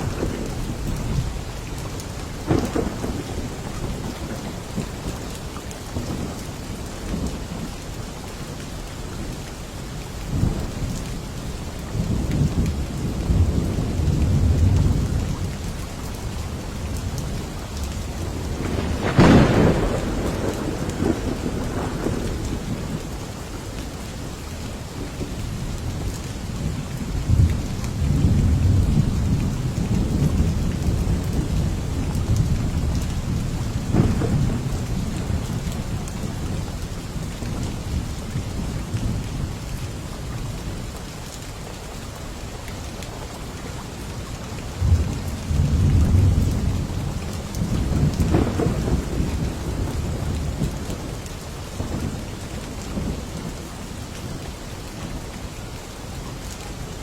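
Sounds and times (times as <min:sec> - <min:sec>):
rolling thunder: 0:00.0 - 0:01.4, 0:02.4 - 0:05.2, 0:12.1 - 0:23.2, 0:25.9 - 0:37.7, 0:44.8 - 0:53.7
steady rain falling: 0:00.0 - 0:57.0.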